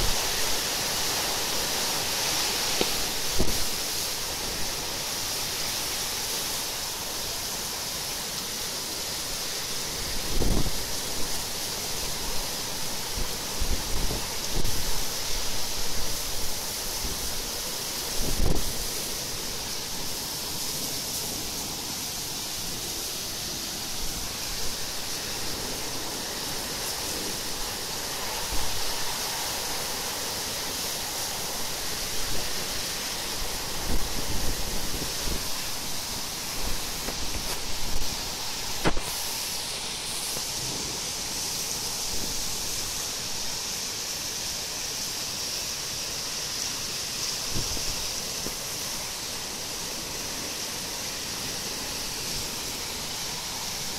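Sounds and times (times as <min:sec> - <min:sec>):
heavy rain hissing: 0:00.0 - 0:53.9
wind gusts buffeting microphone: 0:10.0 - 0:11.4, 0:13.1 - 0:19.0, 0:23.9 - 0:39.2.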